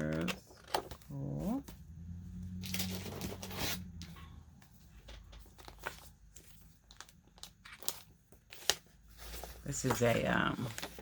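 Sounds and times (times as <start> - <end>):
paper rustling and crinkling: 0.0 - 1.8, 5.1 - 11.0.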